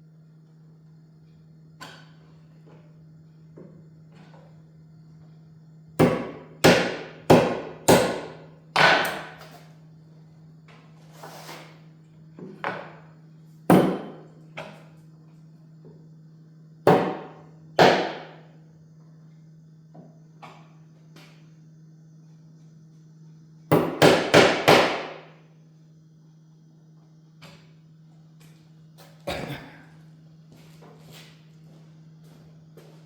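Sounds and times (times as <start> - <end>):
hammer blows on wooden boards: 6.0 - 9.4, 13.7 - 14.7, 16.9 - 18.4, 23.7 - 25.3.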